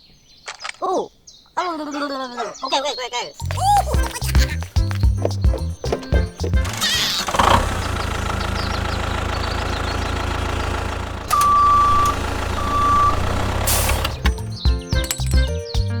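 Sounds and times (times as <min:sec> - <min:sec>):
truck engine idling: 0:03.4 - 0:14.6
long beeps: 0:11.3 - 0:14.2
short hiss: 0:13.4 - 0:14.3.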